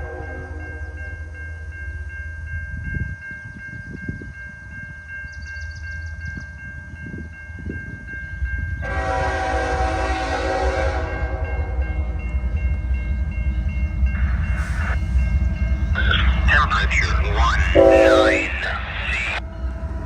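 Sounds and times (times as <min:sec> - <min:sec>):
locomotive air horn: 0:00.0 - 0:01.0, 0:08.8 - 0:11.9, 0:17.7 - 0:18.6
train wheels rumbling on rails: 0:00.0 - 0:20.0
level-crossing bell ringing: 0:11.1 - 0:19.4.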